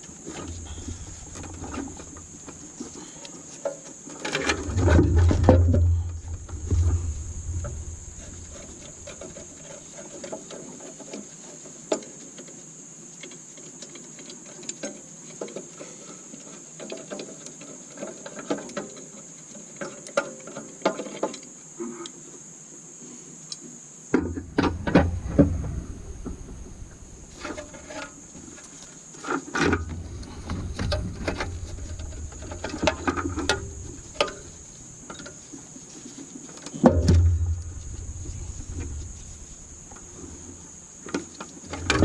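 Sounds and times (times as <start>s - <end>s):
faint high-pitched whine: 0.0s - 16.6s, 21.3s - 42.0s
heavy bumping: 4.6s - 9.7s, 24.2s - 28.6s, 29.8s - 34.9s, 36.8s - 41.0s.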